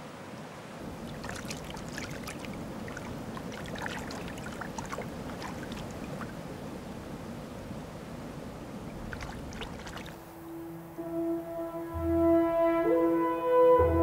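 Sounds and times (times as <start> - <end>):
river water rushing: 0.0 - 11.0
water splashing and gurgling: 0.8 - 10.4.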